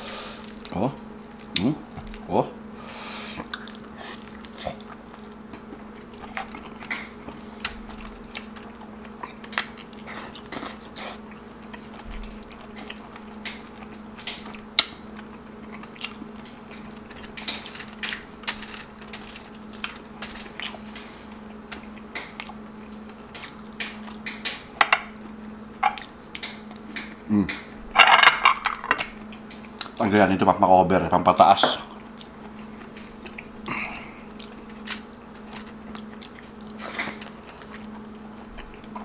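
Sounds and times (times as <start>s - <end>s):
steady low hum: 0.0s - 39.0s
wet chewing and lip-smacking: 3.4s - 17.6s, 31.9s - 39.0s.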